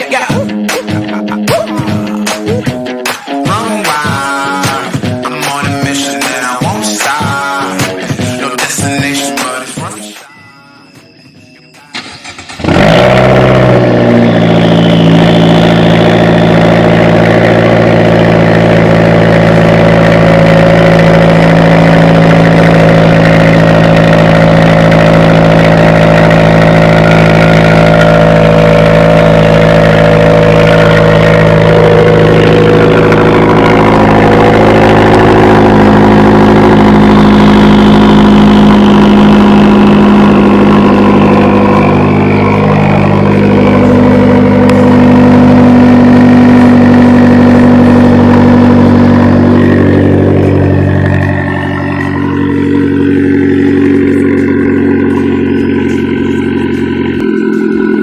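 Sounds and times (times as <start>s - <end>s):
car engine idling: 0.0s - 10.2s, 11.0s - 58.0s
car engine cold starting: 11.8s - 58.0s.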